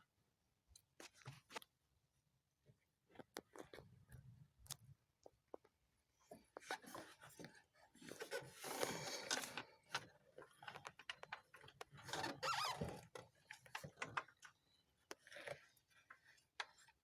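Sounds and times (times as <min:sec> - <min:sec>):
small clicks and taps: 0:09.3 - 0:12.0.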